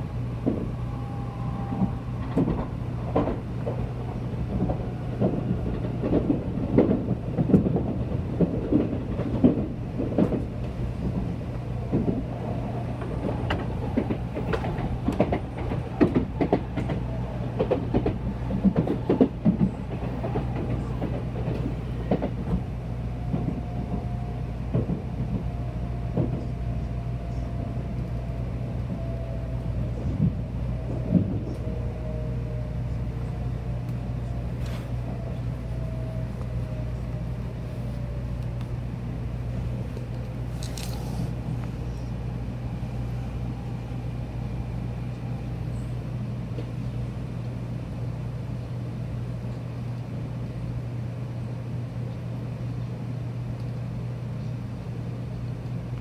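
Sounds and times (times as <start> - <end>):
train cabin low rumble: 0.0 - 56.0
wheels clacking over rail joints: 1.7 - 27.4.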